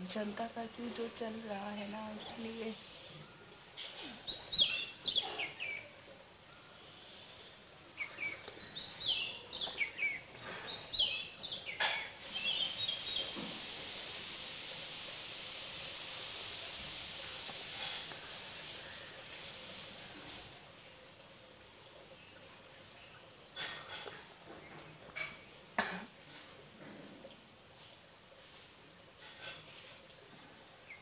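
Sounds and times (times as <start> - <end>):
steady high hiss: 0.0 - 31.0
birds chirping: 7.8 - 13.4.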